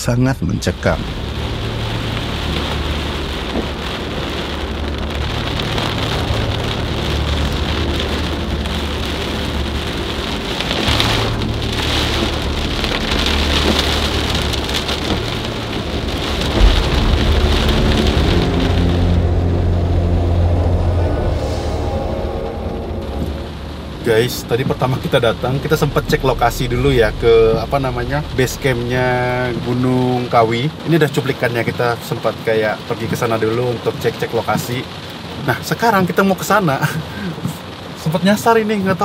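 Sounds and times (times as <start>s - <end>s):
heavy rain on car windshield: 0.5s - 39.0s
low hum: 0.7s - 30.5s
loud low thump: 1.0s - 4.3s, 10.8s - 29.9s.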